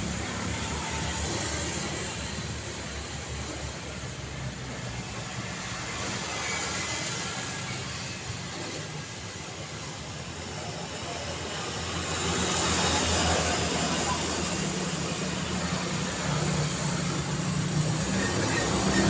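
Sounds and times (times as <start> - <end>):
road traffic noise: 0.0 - 19.0
vehicle passing close: 11.7 - 19.0.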